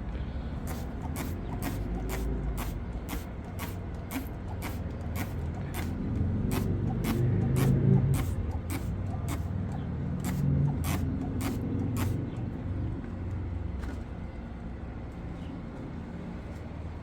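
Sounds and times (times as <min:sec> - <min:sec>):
swishing cleaning strokes on patio: 0:00.6 - 0:12.4.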